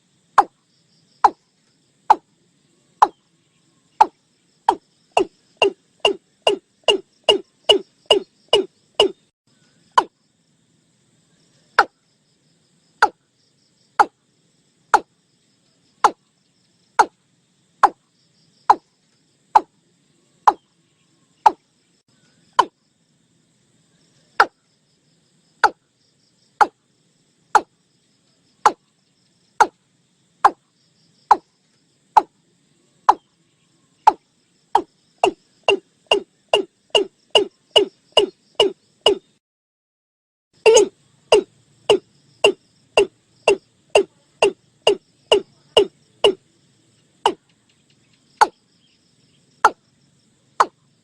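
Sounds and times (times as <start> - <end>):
bird calling hollow notes: 3.0 - 3.2, 4.0 - 9.3, 16.0 - 16.2, 20.5 - 20.7, 22.5 - 22.8, 34.0 - 34.2, 34.8 - 39.3, 40.6 - 46.4.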